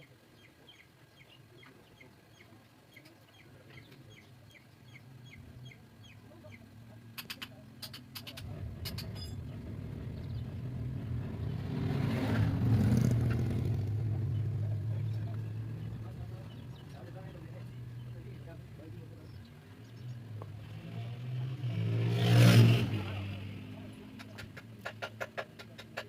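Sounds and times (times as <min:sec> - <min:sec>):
small birds chirping: 0:00.0 - 0:12.1, 0:12.8 - 0:21.5
motor engine rumbling: 0:00.0 - 0:26.0.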